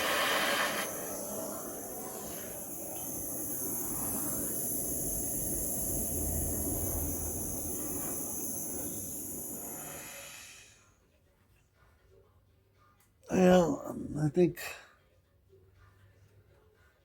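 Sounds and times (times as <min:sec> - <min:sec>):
low rumble: 0:00.0 - 0:10.6
gas torch flame hissing: 0:00.0 - 0:10.9.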